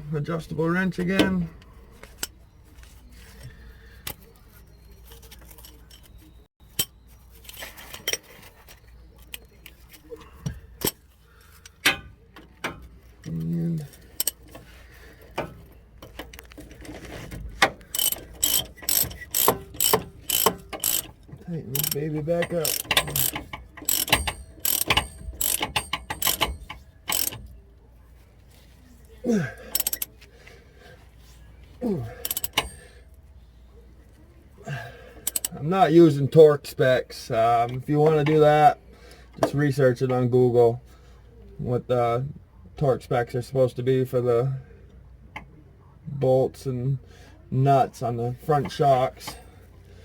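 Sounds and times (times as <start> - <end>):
hand tools clinking on metal: 17.8 - 27.4, 29.3 - 30.1, 32.1 - 33.0.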